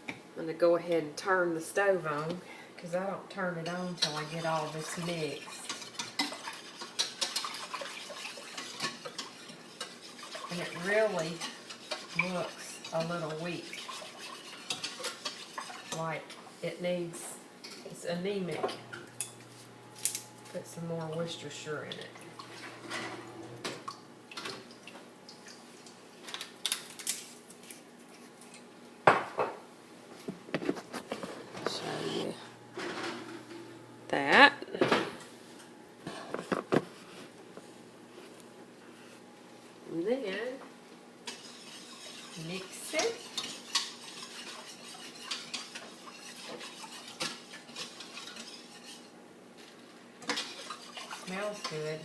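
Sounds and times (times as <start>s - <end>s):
metal utensil scraping a pot: 3.6s - 16.3s, 31.6s - 33.6s, 41.2s - 49.1s, 50.3s - 52.0s.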